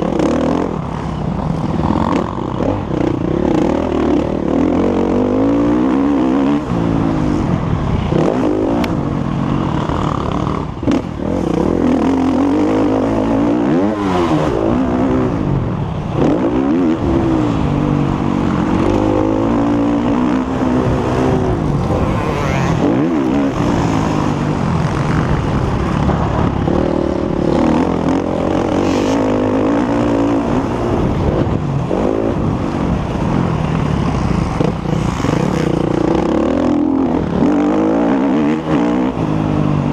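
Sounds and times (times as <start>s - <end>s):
motocross bike engine revving: 18.1s - 26.0s.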